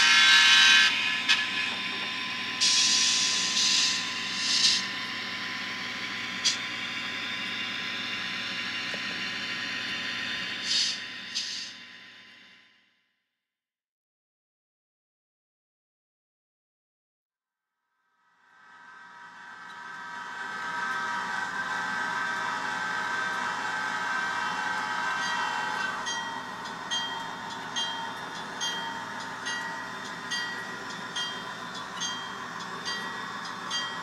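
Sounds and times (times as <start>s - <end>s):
diesel locomotive engine running: 0.0s - 12.4s, 19.0s - 34.0s
locomotive bell ringing: 25.1s - 34.0s.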